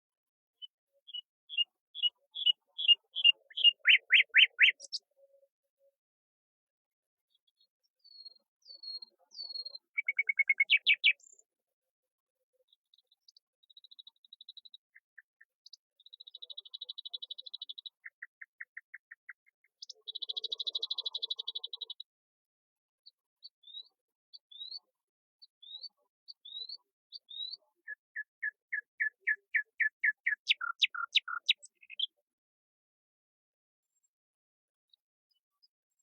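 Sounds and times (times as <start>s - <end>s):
birdsong trills and whistles: 0.6s - 5.0s, 8.0s - 11.4s, 25.6s - 32.2s.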